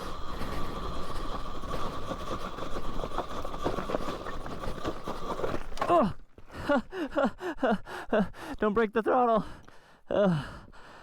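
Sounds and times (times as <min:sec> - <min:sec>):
electric motor whining: 0:00.0 - 0:05.9
bike knocking over rocks: 0:03.0 - 0:06.1.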